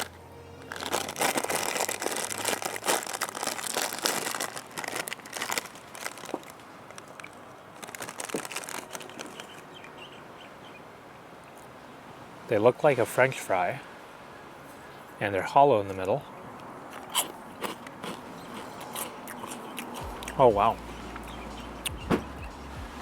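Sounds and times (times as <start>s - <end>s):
plastic snack bag crinkling: 0.0s - 9.8s.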